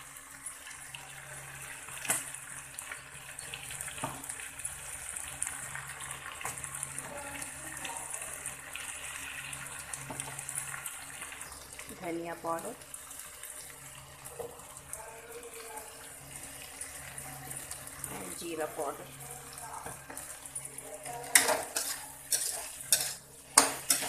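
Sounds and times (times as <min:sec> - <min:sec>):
food sizzling in a pan: 0:00.0 - 0:24.0
metal spatula clicking on pan: 0:21.3 - 0:24.0.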